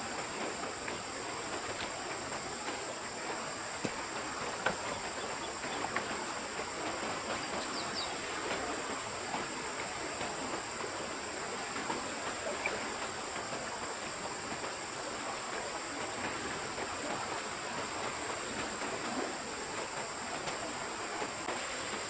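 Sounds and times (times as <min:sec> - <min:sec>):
high insect drone: 0:00.0 - 0:22.0
stream water running: 0:00.0 - 0:22.0
bird chirps: 0:07.4 - 0:08.2.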